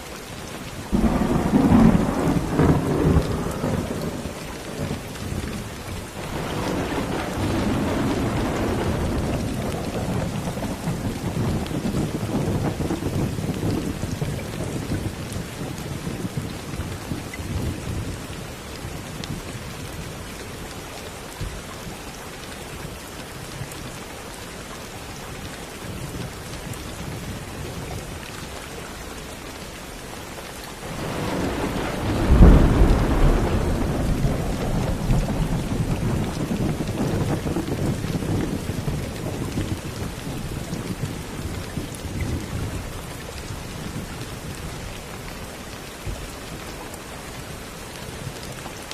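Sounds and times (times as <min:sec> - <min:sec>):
steady rain: 0:00.0 - 0:48.9
thunderclap: 0:00.9 - 0:05.6, 0:06.2 - 0:16.4, 0:30.8 - 0:42.8
rolling thunder: 0:00.9 - 0:18.1, 0:30.8 - 0:43.0.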